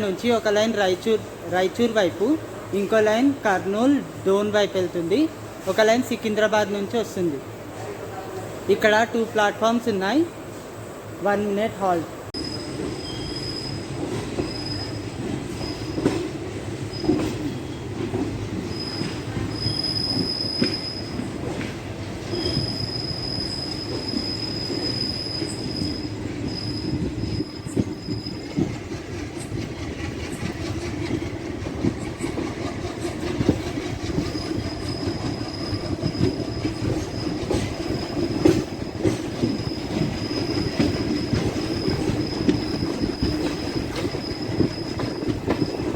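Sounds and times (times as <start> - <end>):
train wheels rumbling on rail: 0.0 - 45.9.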